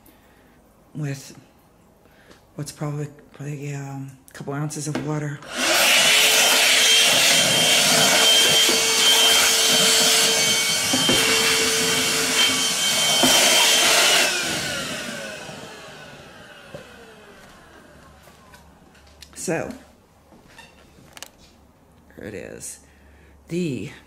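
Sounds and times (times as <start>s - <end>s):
handheld vacuum motor whine: 5.4s - 18.8s
motor spinning down: 5.5s - 18.3s.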